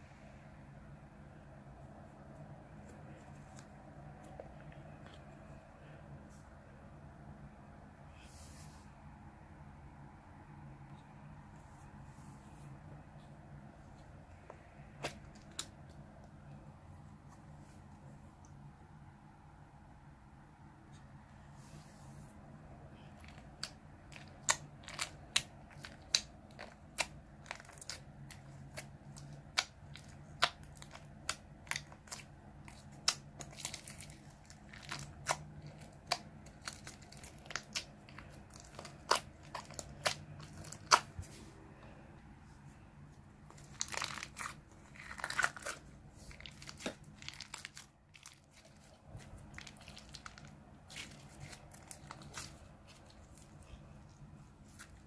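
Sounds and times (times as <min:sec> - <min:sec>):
slime popping and crackling: 0:23.1 - 0:41.2, 0:43.5 - 0:53.7.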